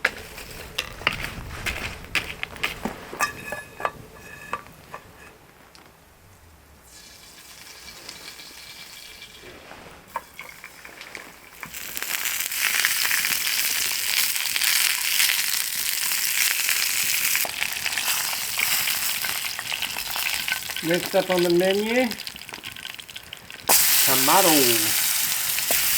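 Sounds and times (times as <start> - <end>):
food sizzling in a pan: 6.9 - 25.9.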